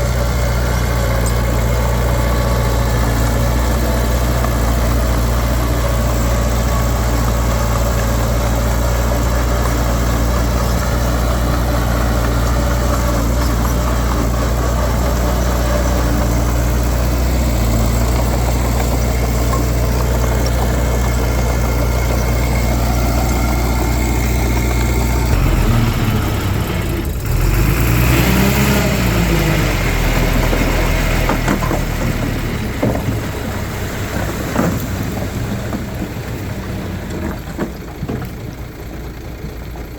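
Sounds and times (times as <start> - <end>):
heavy diesel engine idling and revving: 0.0 - 39.9.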